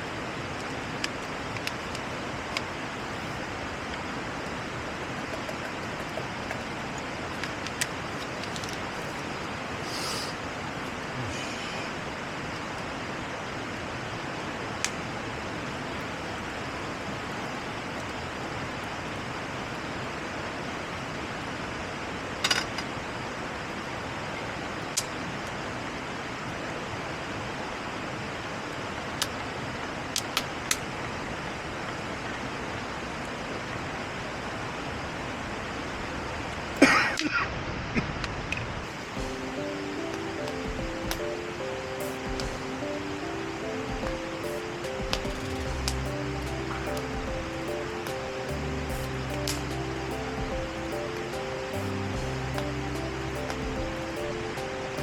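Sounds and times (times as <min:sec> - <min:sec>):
rushing hiss: 0:00.1 - 0:13.0, 0:38.8 - 0:55.0.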